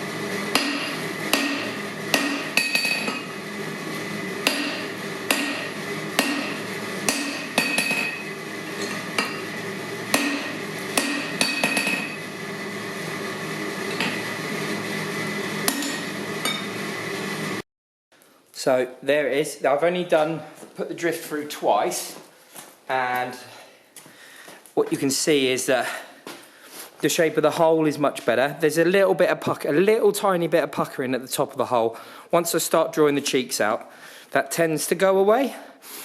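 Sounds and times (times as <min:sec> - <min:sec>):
steady background hum: 0:00.0 - 0:17.6
hammer blows ringing on metal: 0:00.5 - 0:03.3, 0:04.4 - 0:08.3, 0:10.1 - 0:12.2.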